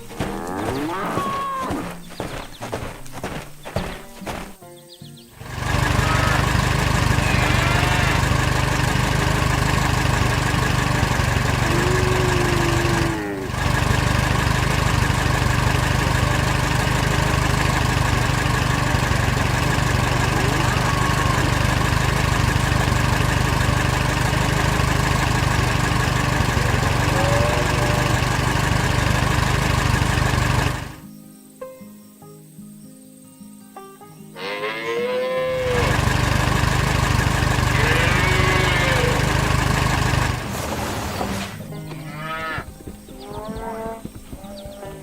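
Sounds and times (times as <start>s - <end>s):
engine running: 0.0s - 4.6s, 5.3s - 31.0s, 35.4s - 45.0s
faint gliding chirps: 41.1s - 45.0s.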